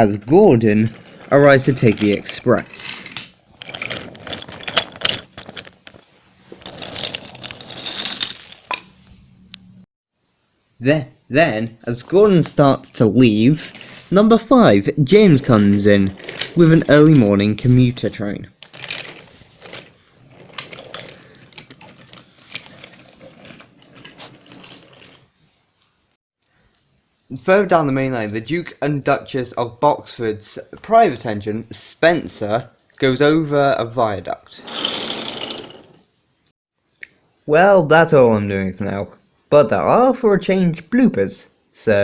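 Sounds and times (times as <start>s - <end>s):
faint rolling rumble: 0.0s - 2.9s.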